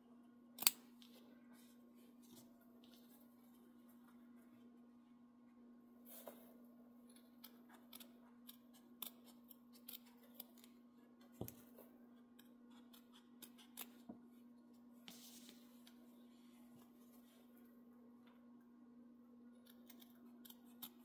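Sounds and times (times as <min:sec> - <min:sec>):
faint steady hum: 0:00.0 - 0:21.0
scissors snipping: 0:00.6 - 0:00.8, 0:07.1 - 0:10.7, 0:19.6 - 0:21.0.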